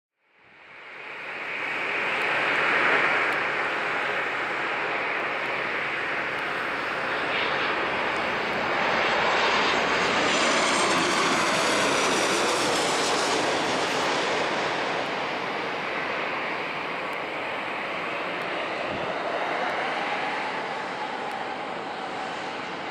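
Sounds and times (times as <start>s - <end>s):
jet engine rumble and hiss: 0.4s - 22.9s.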